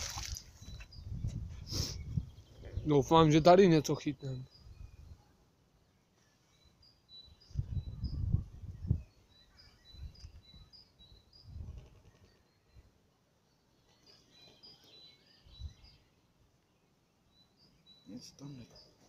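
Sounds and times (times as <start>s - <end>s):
outdoor background noise: 0.0s - 19.0s
small birds chirping: 0.0s - 19.0s.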